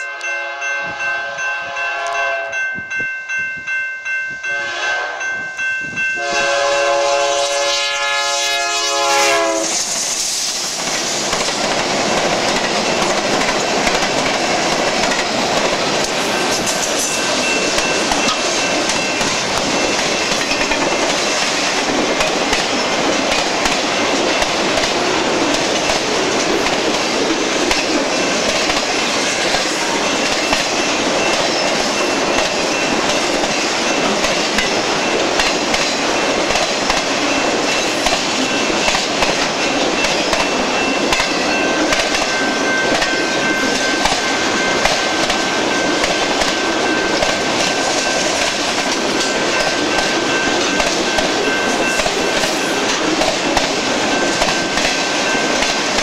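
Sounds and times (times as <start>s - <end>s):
locomotive horn blast: 0.0s - 2.6s, 4.4s - 5.4s, 6.2s - 9.9s
crossing bell ringing: 0.0s - 9.7s, 11.5s - 56.0s
train wheels clattering: 8.7s - 56.0s.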